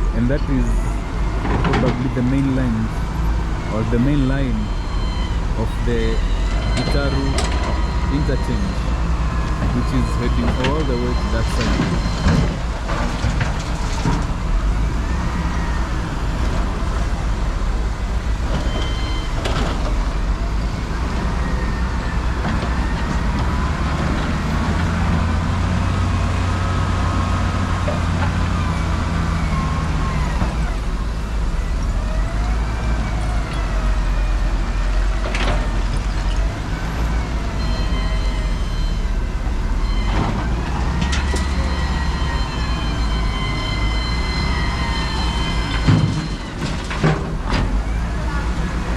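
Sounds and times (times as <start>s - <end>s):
heavy highway traffic rumble: 0.0s - 48.9s
high wavering tones: 2.5s - 22.4s.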